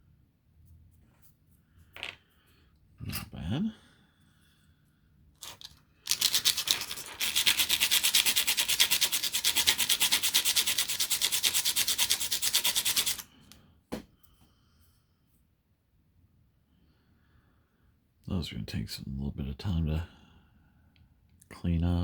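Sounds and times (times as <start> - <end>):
sanding plastic scraping strokes: 5.4 - 13.6.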